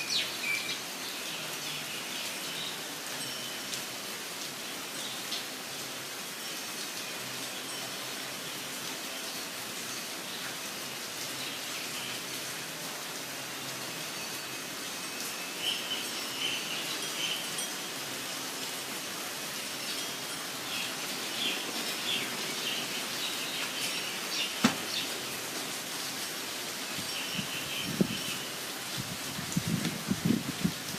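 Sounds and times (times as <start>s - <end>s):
steady rain falling: 0.0s - 30.9s
small birds chirping: 19.8s - 25.4s.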